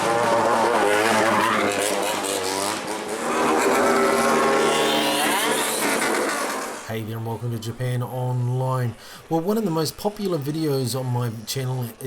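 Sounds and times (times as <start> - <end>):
motorcycles revving: 0.0 - 6.9.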